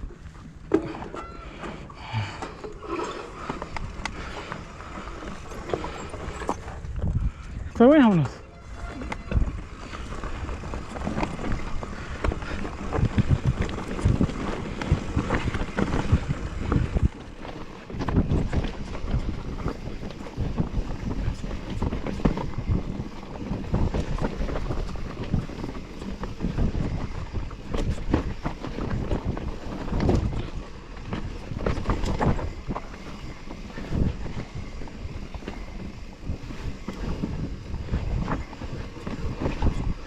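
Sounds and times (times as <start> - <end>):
bicycle rattles and knocks: 0.0 - 40.0
wind buffeting microphone: 0.0 - 40.0.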